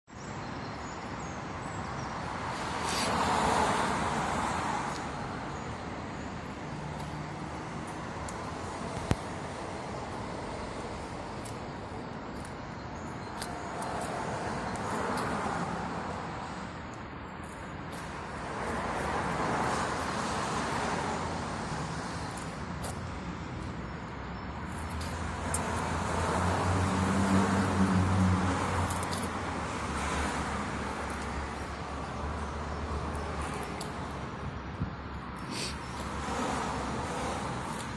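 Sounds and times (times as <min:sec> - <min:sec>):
road traffic noise: 0:00.1 - 0:37.9
vehicle passing: 0:25.2 - 0:33.6.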